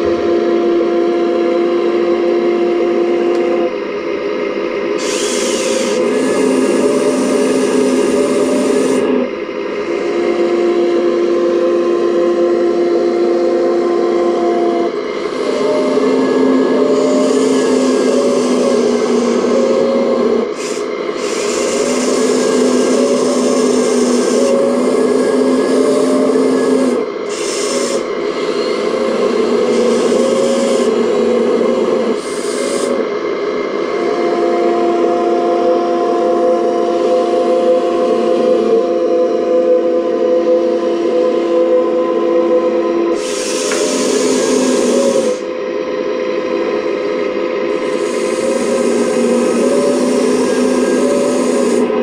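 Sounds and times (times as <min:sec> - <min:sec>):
hydraulic pump and motors whining: 0:00.0 - 0:52.0
grainy rasping noise: 0:13.8 - 0:33.1, 0:47.8 - 0:52.0.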